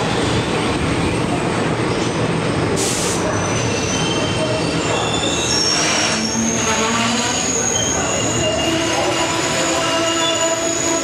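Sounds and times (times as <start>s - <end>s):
high wheel squeals: 3.4s - 11.0s.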